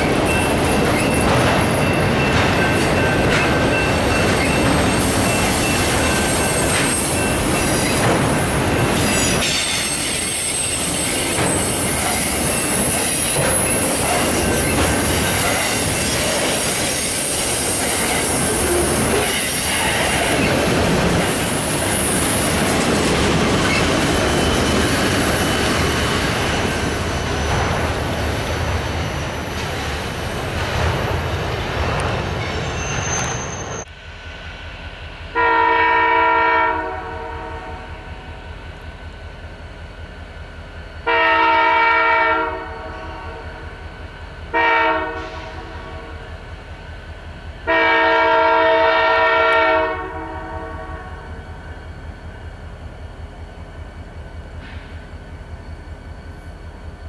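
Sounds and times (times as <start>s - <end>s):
steel wheels squealing: 0.0s - 33.9s
diesel locomotive horn: 35.3s - 38.3s, 41.0s - 43.8s, 44.5s - 46.3s, 47.6s - 51.4s.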